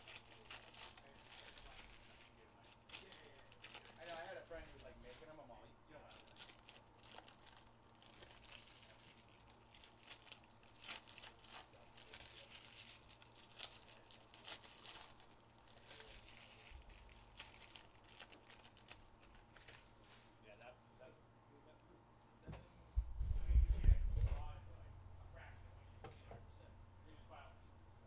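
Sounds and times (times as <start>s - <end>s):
card pack wrappers crinkling: 0.0s - 5.4s, 6.0s - 20.4s.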